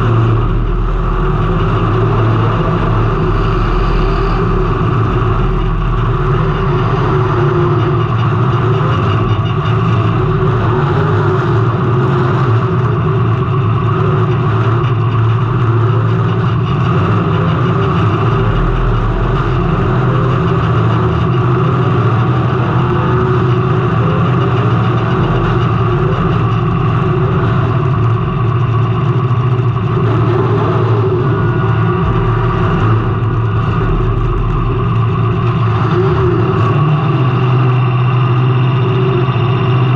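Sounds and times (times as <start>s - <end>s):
race car engine running: 0.0s - 39.9s.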